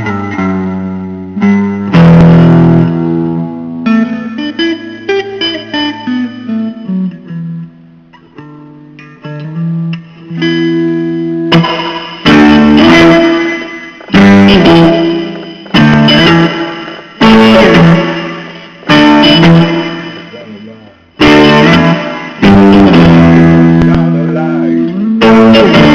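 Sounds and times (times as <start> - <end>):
blues guitar playing: 0.0 - 25.9.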